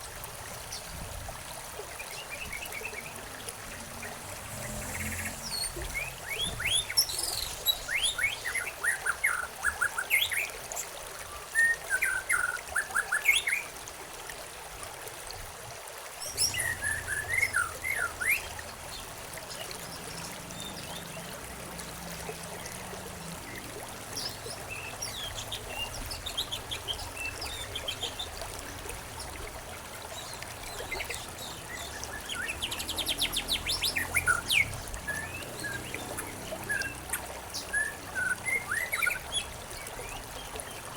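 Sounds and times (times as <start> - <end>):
running water trickling: 0.0 - 40.9
songbirds chirping: 16.3 - 40.9.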